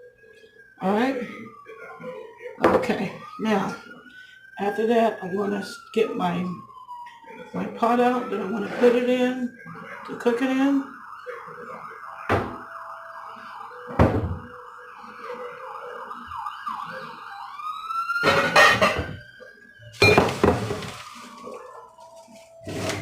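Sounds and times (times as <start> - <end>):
emergency vehicle siren: 0.0 - 23.0
cooking pot knocking and clanking: 18.3 - 19.2.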